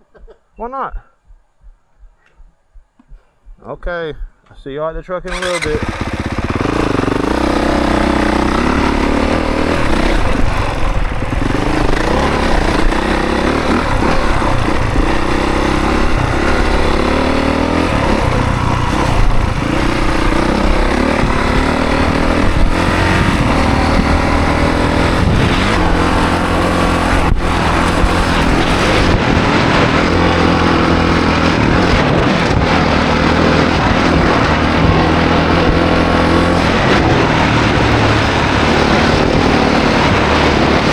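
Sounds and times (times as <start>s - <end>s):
dirt bike engine revving: 5.3s - 40.9s.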